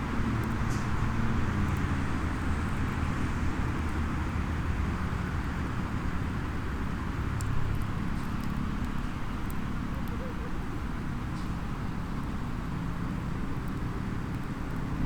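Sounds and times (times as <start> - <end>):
faint wood fire crackles: 11.2 - 15.0.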